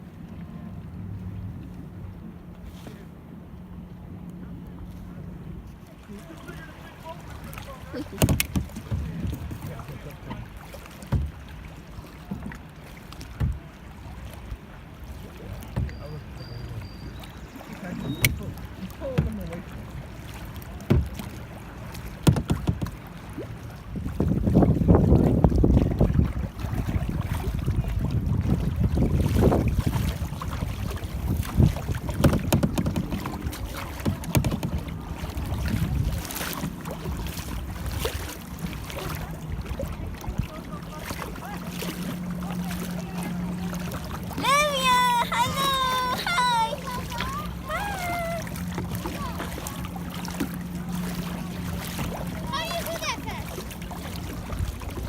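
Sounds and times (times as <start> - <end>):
paddle strokes splashing water: 0.0 - 55.0
wind on microphone: 23.8 - 40.6.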